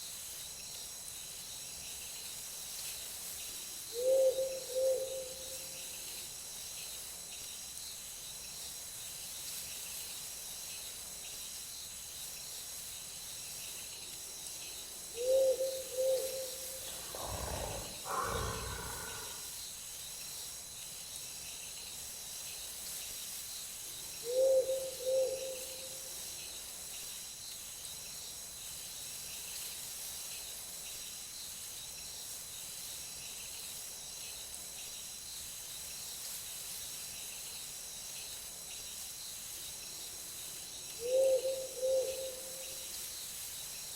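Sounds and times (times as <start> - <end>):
insects chirring: 5.8 - 28.4.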